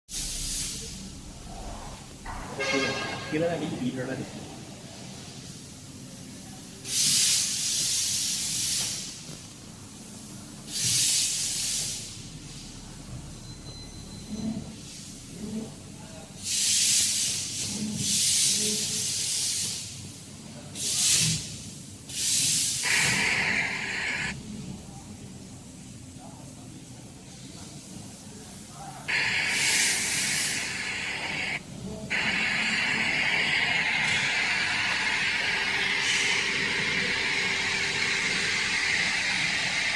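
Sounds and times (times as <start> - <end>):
loud hissing bursts: 0.1 - 4.0, 6.8 - 9.2, 10.0 - 12.6, 20.8 - 24.4, 29.1 - 39.9.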